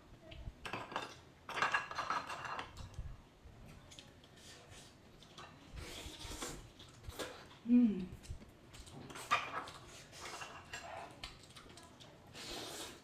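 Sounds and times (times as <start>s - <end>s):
dishes and utensils clinking: 0.6s - 3.0s, 8.8s - 11.8s.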